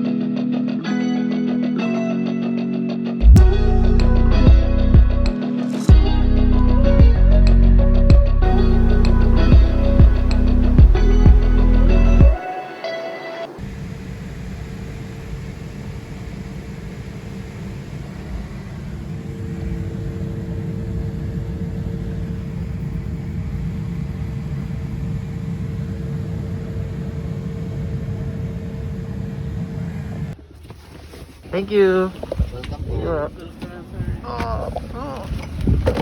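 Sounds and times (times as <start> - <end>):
aircraft engines droning in cabin: 8.5 - 30.4.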